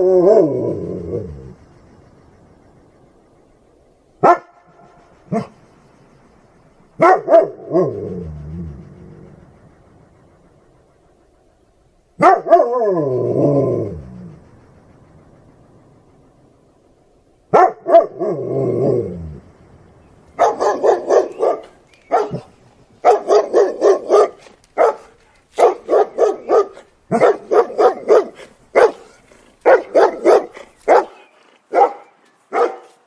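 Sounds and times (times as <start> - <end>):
dog barking fiercely: 4.2 - 4.6, 7.0 - 8.3, 12.2 - 12.8, 17.5 - 18.5, 20.4 - 33.0.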